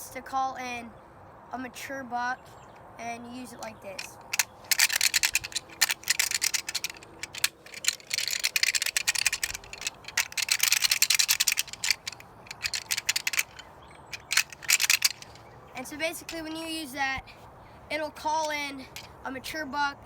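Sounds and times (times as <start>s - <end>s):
rattle bag clacking: 3.9s - 15.4s, 18.9s - 19.1s.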